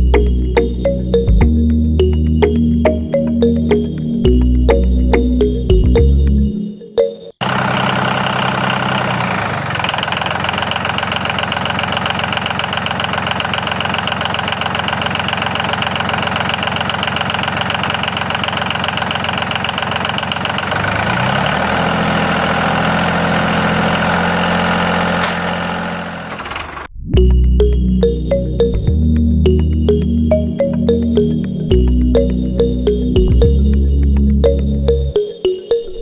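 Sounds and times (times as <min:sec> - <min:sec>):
engine idling with rapid knock: 0:07.4 - 0:26.9.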